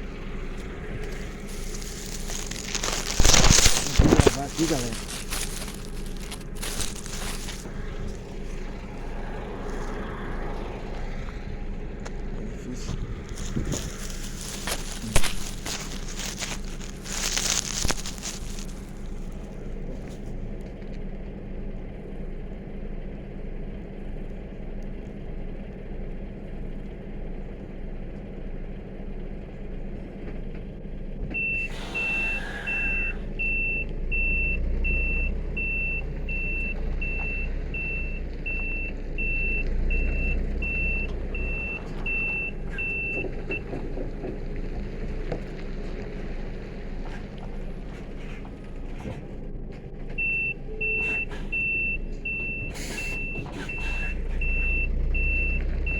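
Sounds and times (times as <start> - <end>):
truck engine running: 0.0 - 55.9
reversing beeper: 31.4 - 43.8, 50.2 - 55.9.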